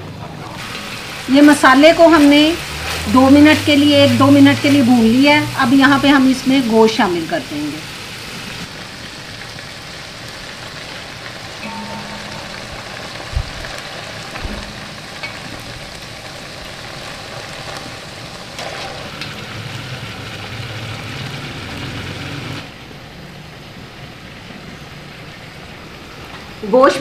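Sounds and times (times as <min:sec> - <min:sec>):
paste sizzling in hot pan: 0:00.6 - 0:22.6
steel ladle clinking on pot: 0:11.6 - 0:13.6.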